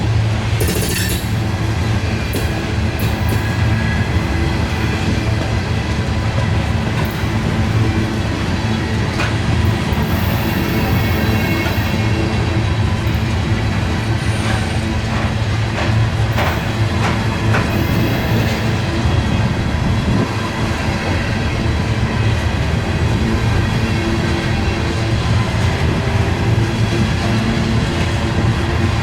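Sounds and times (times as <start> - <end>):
train rumbling past: 0.0 - 29.0.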